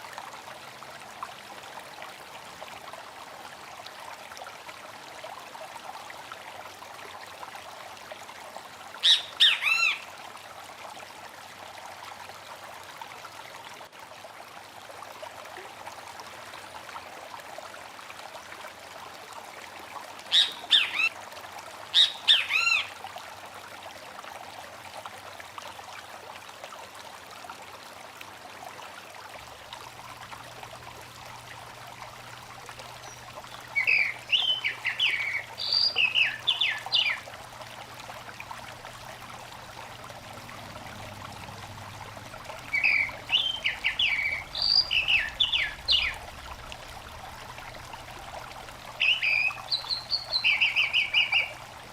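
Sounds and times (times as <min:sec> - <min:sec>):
small stream trickling: 0:00.0 - 0:51.9
bird calls with sliding notes: 0:09.0 - 0:10.0, 0:20.3 - 0:21.1, 0:22.0 - 0:22.9, 0:33.8 - 0:37.2, 0:42.7 - 0:46.2, 0:49.0 - 0:51.6.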